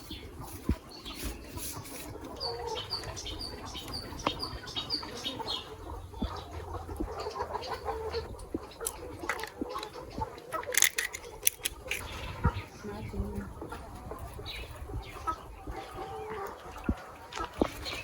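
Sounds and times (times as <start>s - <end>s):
birds chirping: 0.0s - 18.0s
chickens clucking: 0.0s - 18.0s
sharp clicks: 8.4s - 12.0s.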